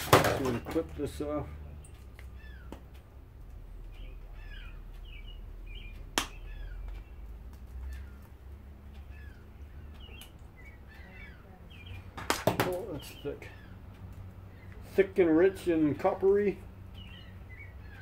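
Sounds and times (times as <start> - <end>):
small birds chirping: 0.1 - 18.0
steady low rumble: 0.9 - 12.2.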